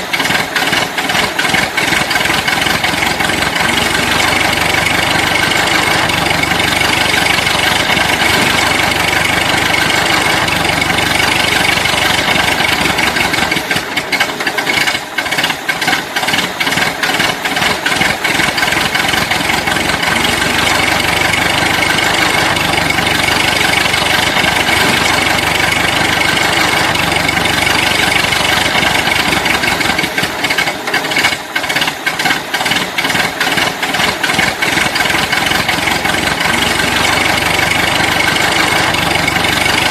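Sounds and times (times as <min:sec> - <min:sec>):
loud engine running: 0:00.0 - 0:39.9.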